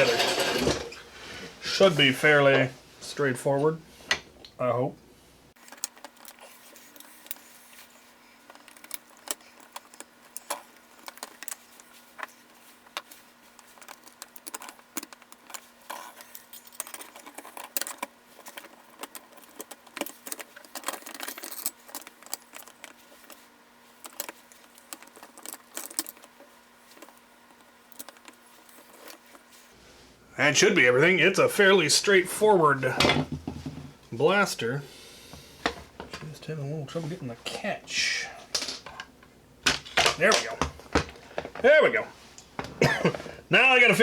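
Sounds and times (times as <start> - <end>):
faint steady hum: 0.0 - 44.0
plastic and metal parts clicking: 8.5 - 23.4, 24.0 - 29.3.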